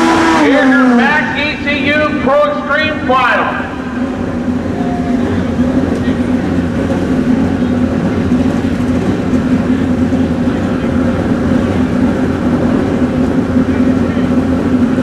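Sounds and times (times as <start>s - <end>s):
motorcycle engines running: 0.0s - 15.0s.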